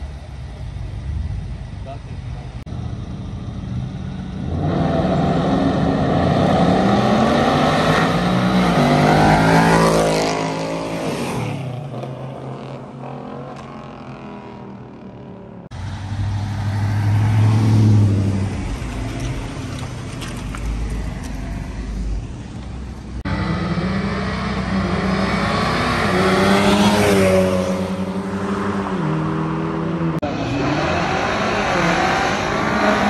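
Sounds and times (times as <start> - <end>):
car engine running at low revs: 0.0 - 7.2
car accelerating and passing: 2.6 - 33.0.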